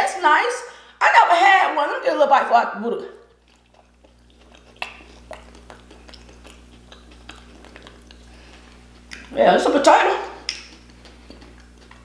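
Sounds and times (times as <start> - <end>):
chewing with wet mouth sounds: 3.2 - 12.0
mouth smacking clicks: 3.4 - 9.4, 10.4 - 12.0.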